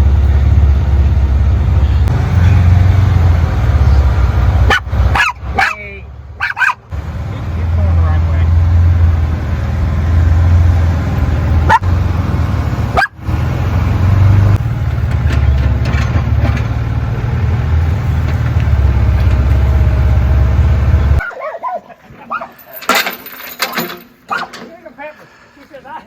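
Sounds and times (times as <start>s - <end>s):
vehicle engine rumbling: 0.0s - 21.3s
dog barking: 4.6s - 5.8s, 6.4s - 6.9s, 11.6s - 11.8s, 12.9s - 13.2s, 21.2s - 22.8s, 24.3s - 24.6s.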